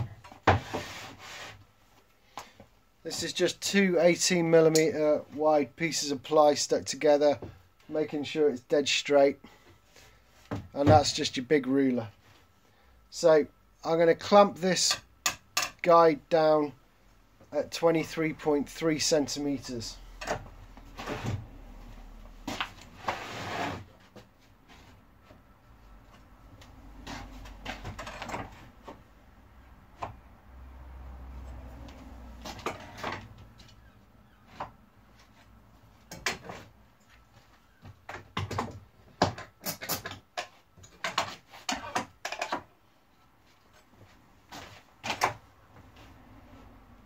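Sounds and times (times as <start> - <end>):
soft shuffling of wood: 0.6 - 3.4.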